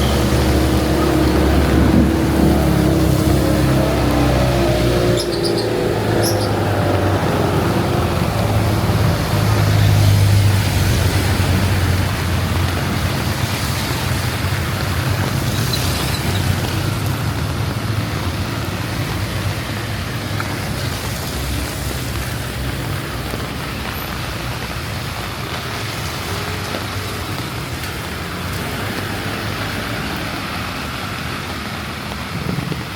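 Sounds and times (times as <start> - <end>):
heavy rain hissing: 0.0 - 32.9
tyres on wet pavement: 0.0 - 32.9
vehicle engines passing: 0.0 - 32.9.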